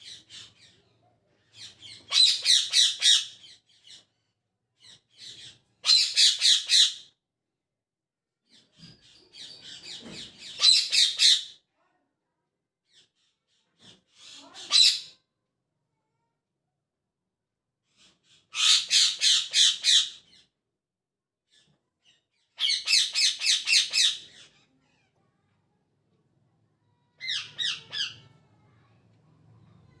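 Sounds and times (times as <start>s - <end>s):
parrot squawking: 2.1s - 3.3s, 5.9s - 7.0s, 10.5s - 11.5s, 18.6s - 20.2s, 22.6s - 24.4s, 27.2s - 28.4s.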